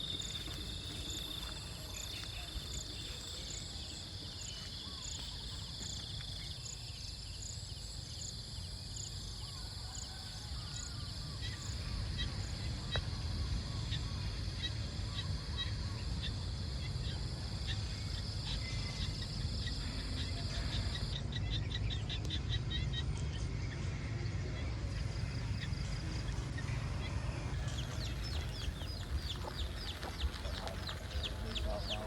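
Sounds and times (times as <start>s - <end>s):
birds chirping: 0.0s - 7.6s, 24.9s - 32.0s.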